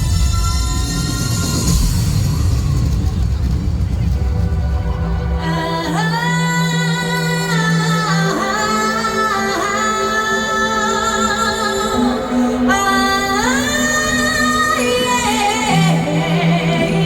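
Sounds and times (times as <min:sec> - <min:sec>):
woman singing with vibrato: 0:05.3 - 0:17.0.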